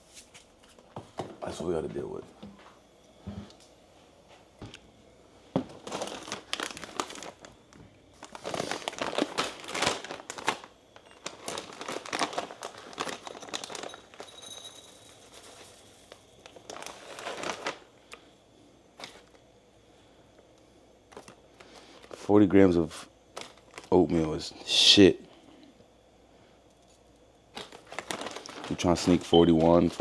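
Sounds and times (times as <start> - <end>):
plastic packaging crinkling: 5.6 - 18.2, 21.1 - 22.3, 23.3 - 24.4, 27.5 - 30.0.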